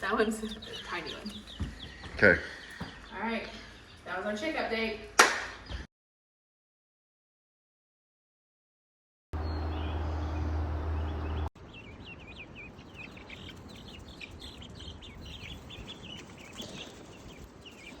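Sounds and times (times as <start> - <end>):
baby chicks peeping: 0.0 - 4.8, 9.4 - 18.0.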